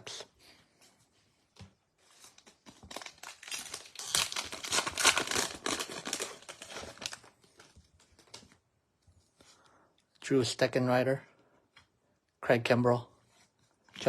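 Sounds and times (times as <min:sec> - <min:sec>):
plastic wrapper crinkling: 0:02.1 - 0:08.6.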